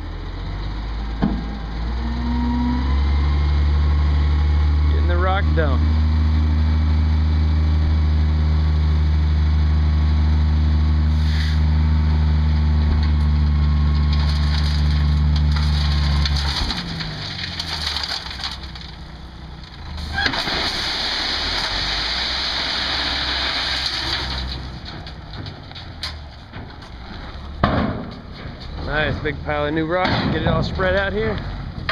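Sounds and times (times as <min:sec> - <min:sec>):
truck diesel engine running: 0:00.0 - 0:20.5
gravel sliding off truck bed: 0:11.0 - 0:31.9.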